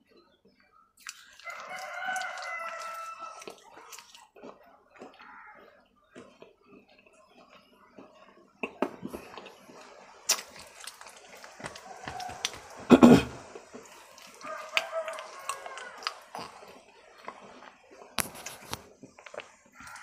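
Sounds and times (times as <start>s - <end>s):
wet mouth clicks: 1.0s - 5.2s, 10.3s - 20.0s
crunching hard food: 1.0s - 20.0s.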